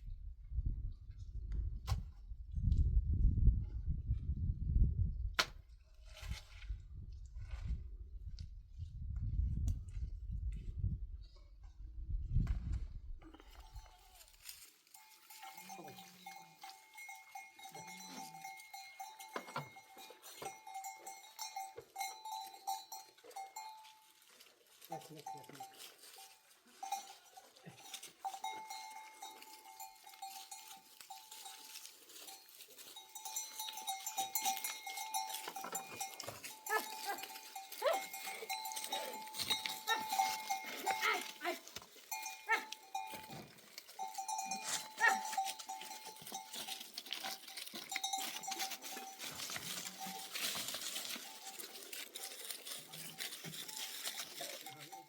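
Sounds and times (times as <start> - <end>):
livestock bells clanking: 13.3 - 55.0.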